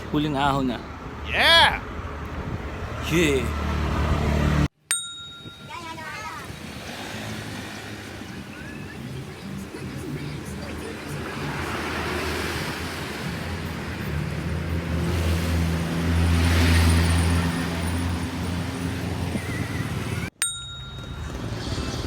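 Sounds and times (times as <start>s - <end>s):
wind and road noise: 0.0s - 22.0s
vehicle engine passing: 2.7s - 4.7s, 6.4s - 20.3s
metallic ding: 4.9s - 5.8s, 20.4s - 21.4s.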